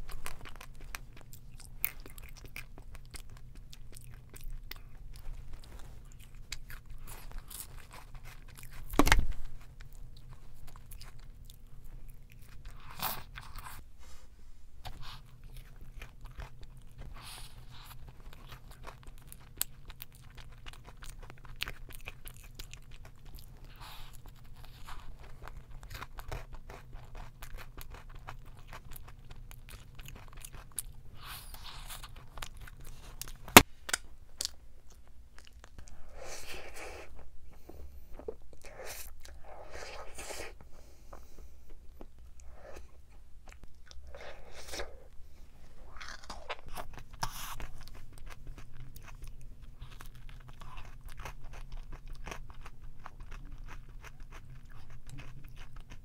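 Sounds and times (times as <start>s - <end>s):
food being crunched and chewed: 0.0s - 13.8s, 14.8s - 36.0s, 45.9s - 56.0s
loud thump: 9.0s - 9.4s.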